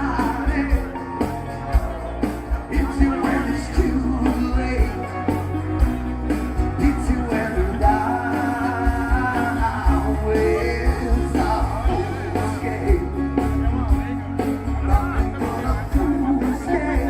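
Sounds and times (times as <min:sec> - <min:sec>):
pop song from vinyl record: 0:00.0 - 0:17.0.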